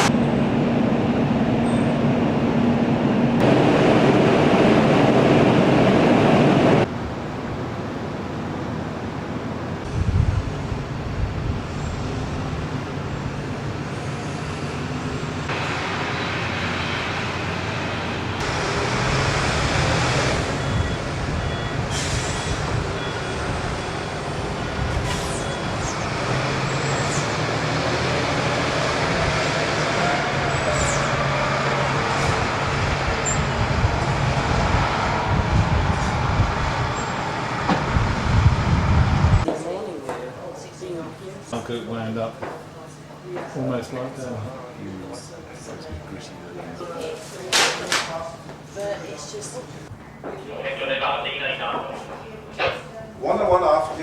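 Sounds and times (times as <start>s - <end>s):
ferry engine rumble and hiss: 0.0s - 39.5s, 50.5s - 54.0s.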